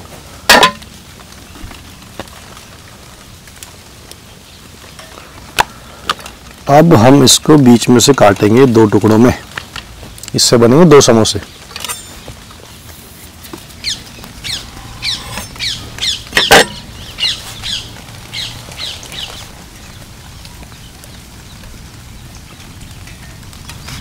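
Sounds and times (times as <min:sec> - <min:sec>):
bird chirping: 0:11.2 - 0:24.0.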